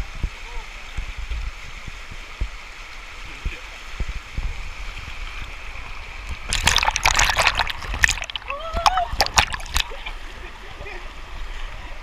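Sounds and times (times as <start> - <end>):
stream water flowing: 0.3 - 12.0
loud splashing: 6.3 - 10.0.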